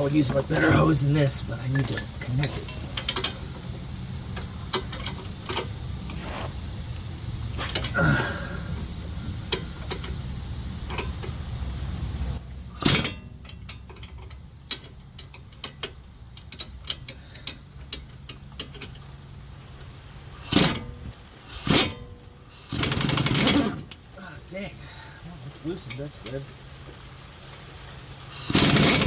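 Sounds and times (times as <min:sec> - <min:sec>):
air hose hissing: 0:00.0 - 0:13.0, 0:13.9 - 0:23.9, 0:27.4 - 0:29.0
air impact wrench bursts: 0:00.0 - 0:19.6, 0:20.2 - 0:24.0, 0:28.2 - 0:29.0
small metal clicks of tools: 0:12.8 - 0:19.0.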